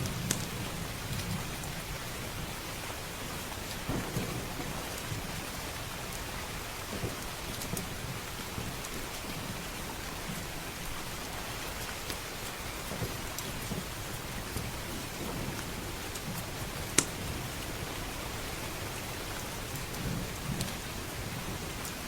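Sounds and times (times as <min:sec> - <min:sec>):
heavy rain: 0:00.0 - 0:22.0
distant thunder rumble: 0:03.8 - 0:09.6.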